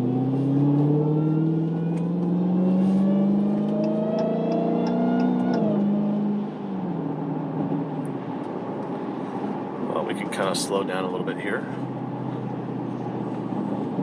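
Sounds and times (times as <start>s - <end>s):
car engine accelerating: 0.0s - 9.8s.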